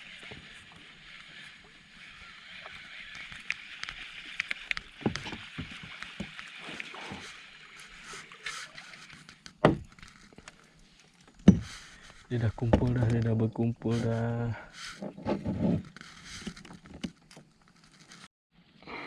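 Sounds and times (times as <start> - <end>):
kayak handling clicks and knocks: 3.1 - 6.5, 8.5 - 10.6, 11.2 - 13.4, 14.8 - 18.2.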